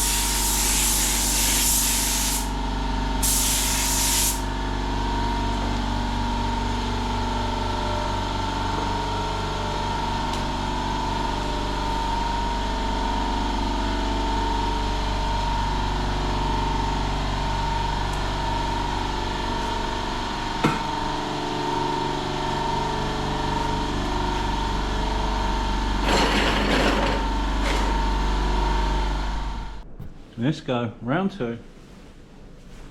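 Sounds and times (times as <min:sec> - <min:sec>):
spray gun hiss: 0:00.0 - 0:02.6, 0:03.2 - 0:04.5
machine humming and whining: 0:04.5 - 0:30.1.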